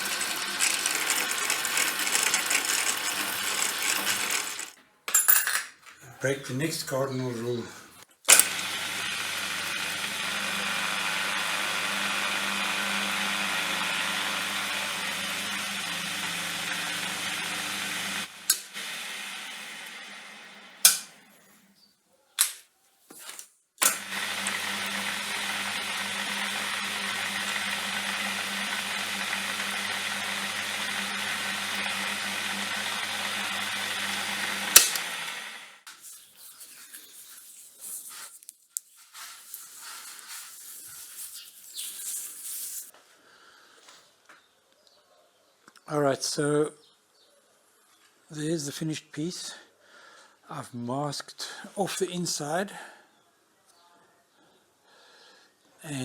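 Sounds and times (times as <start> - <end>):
machine tool motor running: 0.0 - 4.8, 8.3 - 21.3, 23.8 - 35.8
loud switch click: 34.8 - 35.1.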